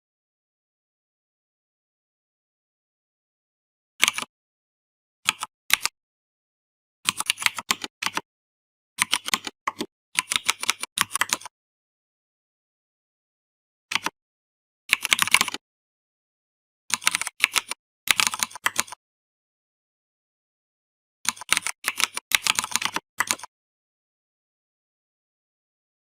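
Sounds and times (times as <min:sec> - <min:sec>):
computer keyboard typing: 0:04.0 - 0:04.3, 0:05.3 - 0:05.9, 0:07.1 - 0:08.2, 0:09.0 - 0:11.5, 0:13.9 - 0:14.2, 0:14.9 - 0:15.6, 0:16.9 - 0:19.0, 0:21.3 - 0:23.5.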